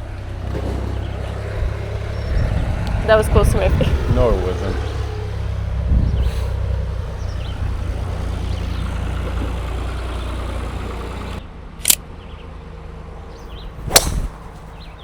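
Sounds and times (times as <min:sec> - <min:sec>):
golf cart motor hum: 0:00.0 - 0:11.4
sharp swish: 0:13.9 - 0:14.4.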